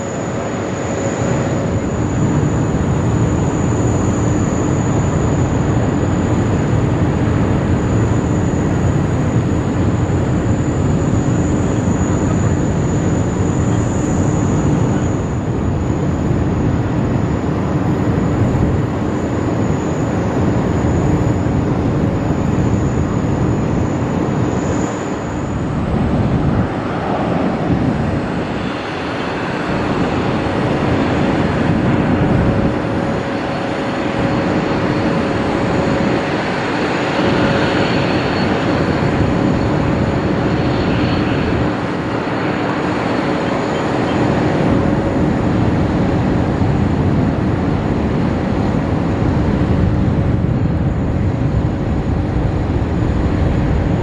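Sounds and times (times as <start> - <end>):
faint whining tones: 0.0 - 54.0
jet engines rushing in flight: 0.0 - 54.0.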